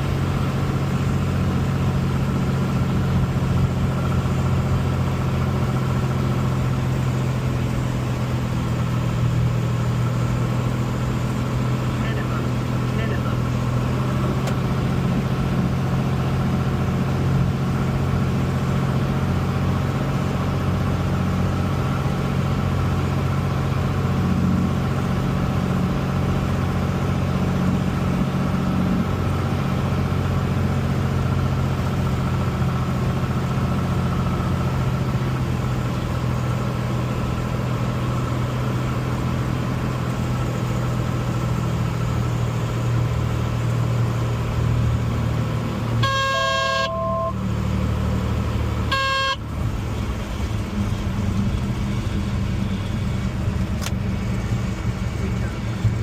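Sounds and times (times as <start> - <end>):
aircraft engine drone: 45.8 - 47.6, 48.6 - 56.0.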